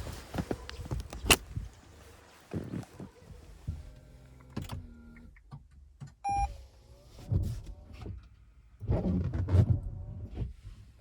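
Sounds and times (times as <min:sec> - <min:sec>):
short electronic beep: 0:06.3 - 0:06.5.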